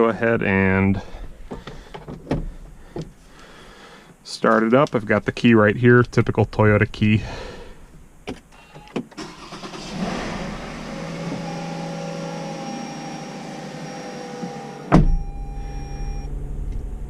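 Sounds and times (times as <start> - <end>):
car engine starting and idling: 8.6 - 17.0
loud thump: 14.9 - 15.4.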